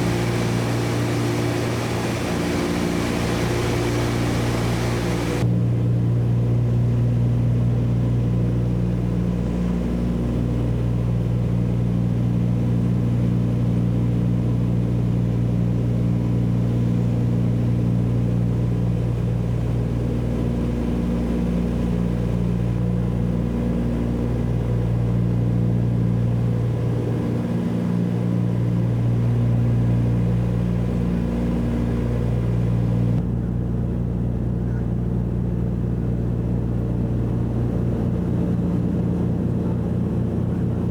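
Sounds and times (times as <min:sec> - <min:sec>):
aircraft cabin engine drone: 0:00.0 - 0:40.9.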